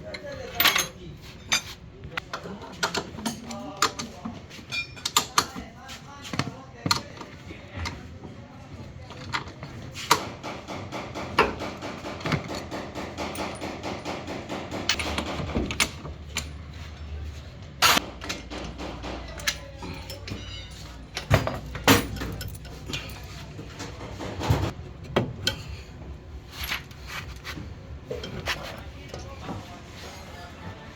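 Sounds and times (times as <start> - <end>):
people talking: 0.0 - 1.3, 28.1 - 30.9
hand tools clanking on metal: 2.7 - 5.6, 9.3 - 17.2, 17.8 - 27.4.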